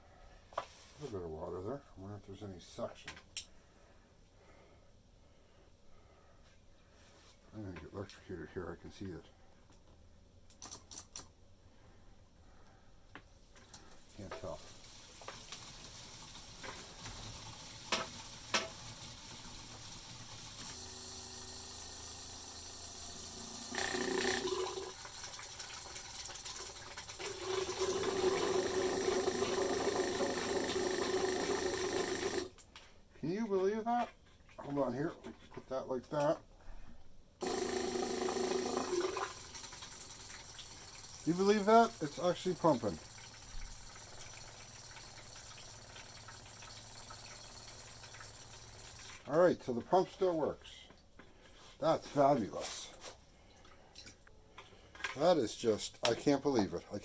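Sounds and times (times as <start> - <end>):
watery flow: 14.2 - 32.5, 37.4 - 49.2
electric fuel pump running: 15.2 - 25.1, 26.6 - 32.5, 37.4 - 49.2.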